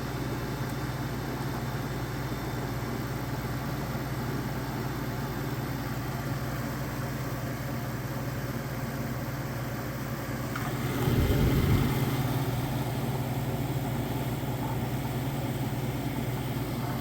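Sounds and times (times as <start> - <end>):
dehumidifier humming: 0.0 - 17.0
fan rushing: 10.0 - 17.0.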